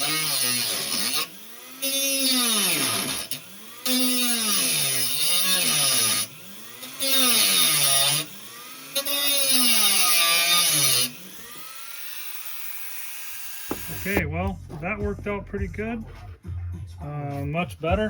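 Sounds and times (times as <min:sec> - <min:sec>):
rotary tool grinding metal: 0:00.0 - 0:14.2.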